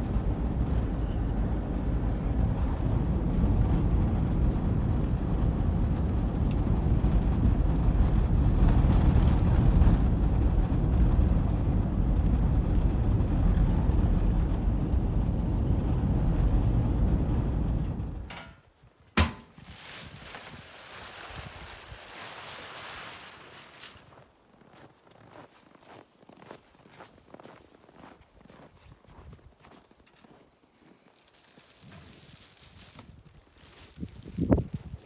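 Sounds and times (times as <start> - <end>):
van engine and road noise: 0.0 - 18.4.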